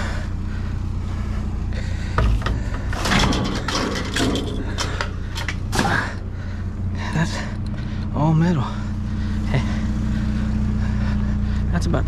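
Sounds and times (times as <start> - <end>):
vehicle engine idling: 0.0 - 12.0
scrap metal clattering: 2.2 - 6.2.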